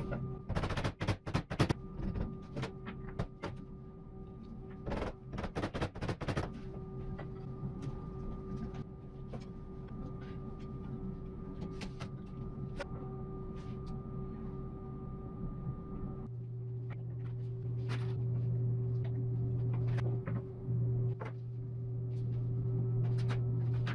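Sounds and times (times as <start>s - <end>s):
steady hum with faint whine: 0.0s - 23.9s.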